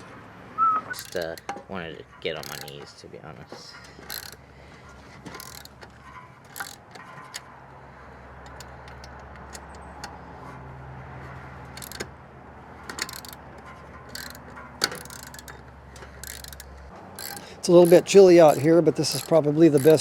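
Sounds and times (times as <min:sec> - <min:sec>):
metal tools clinking: 0:00.9 - 0:04.4, 0:05.2 - 0:07.4, 0:12.9 - 0:20.0.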